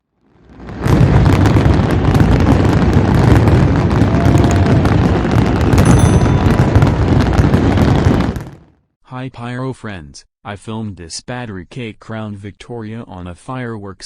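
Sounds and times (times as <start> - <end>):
fireworks bangs and crackles: 0.2 - 8.8.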